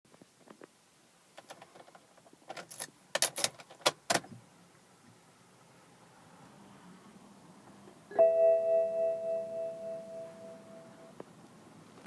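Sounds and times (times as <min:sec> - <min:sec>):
car keys jangling: 0:01.4 - 0:03.9.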